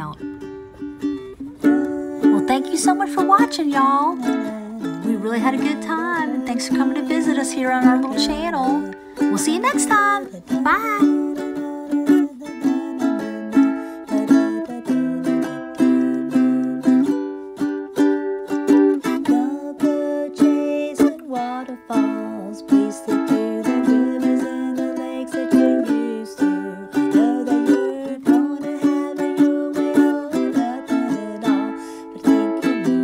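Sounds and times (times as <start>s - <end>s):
sliding melody line: 0.0s - 17.2s
ukulele strummed: 0.0s - 33.0s.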